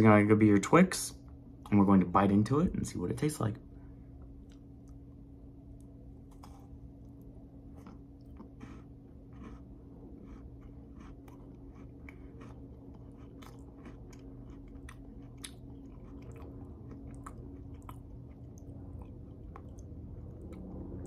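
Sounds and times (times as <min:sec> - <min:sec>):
steady low hum: 0:00.0 - 0:21.0
person chewing crunchy candy: 0:06.2 - 0:21.0.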